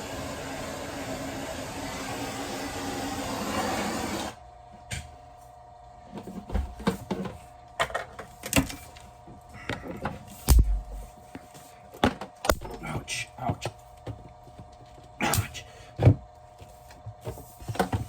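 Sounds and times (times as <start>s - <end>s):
heat gun blowing: 0.0s - 4.4s.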